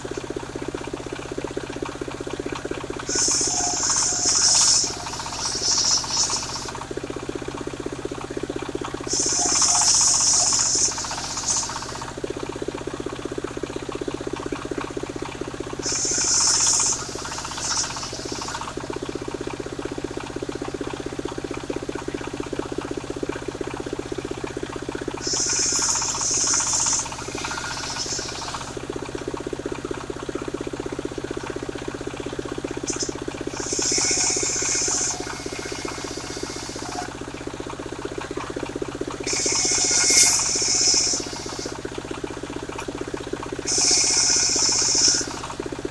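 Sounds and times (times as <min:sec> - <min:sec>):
circular saw running: 0:02.4 - 0:13.2, 0:15.1 - 0:20.3, 0:25.0 - 0:29.4, 0:31.6 - 0:45.9
saw blade whining in wood: 0:03.1 - 0:06.8, 0:09.1 - 0:12.2, 0:15.8 - 0:18.9, 0:25.2 - 0:28.8, 0:32.9 - 0:37.2, 0:39.2 - 0:41.9, 0:43.6 - 0:45.6.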